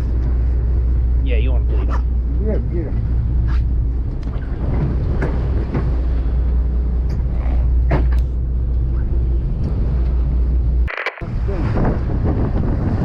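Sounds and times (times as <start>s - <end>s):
boat engine droning: 0.0s - 10.9s
short clicks: 10.9s - 11.3s.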